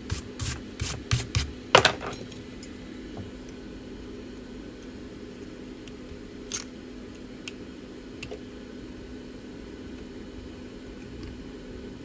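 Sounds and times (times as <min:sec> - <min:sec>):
electric fan humming: 0:00.0 - 0:06.0.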